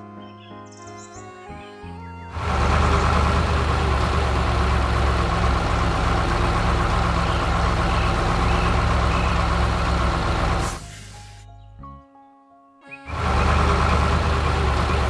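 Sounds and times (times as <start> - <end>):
heavy vehicle engine rumble: 2.3 - 11.4, 13.1 - 15.0.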